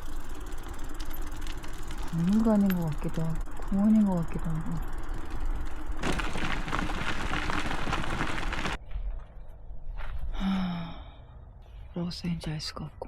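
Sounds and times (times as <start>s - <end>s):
bicycle tyres rolling: 0.0s - 10.1s.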